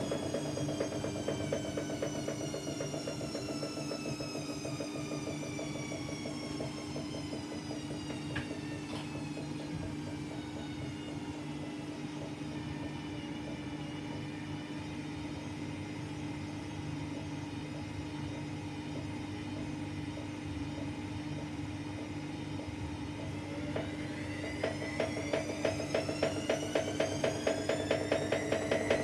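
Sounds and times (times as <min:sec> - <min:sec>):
washing machine motor hum and whine: 0:00.0 - 0:29.0
washing machine drum thumping: 0:22.0 - 0:29.0.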